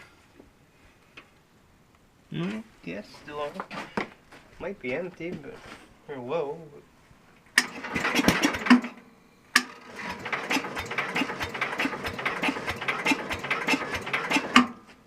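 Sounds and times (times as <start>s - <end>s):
electric starter cranking engine: 7.6s - 9.0s, 9.6s - 14.8s.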